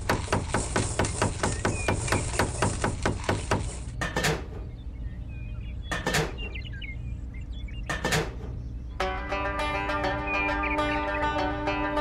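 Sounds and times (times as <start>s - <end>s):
rapid tapping: 0.0s - 4.3s
low steady hum: 3.9s - 12.0s.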